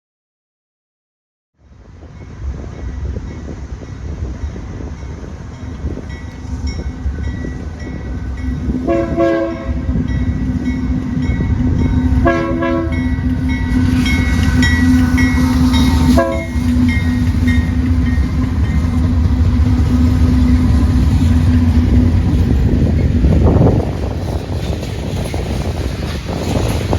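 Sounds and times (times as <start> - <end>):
train rumbling: 1.6 - 26.9
train horn blasts: 8.7 - 10.0, 12.1 - 18.0.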